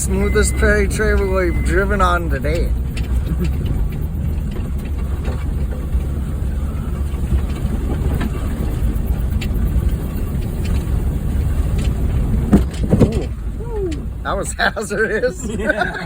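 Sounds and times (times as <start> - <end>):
engine and tyres rumbling: 0.0 - 16.0
knocks and rattles from bumps: 0.0 - 16.0.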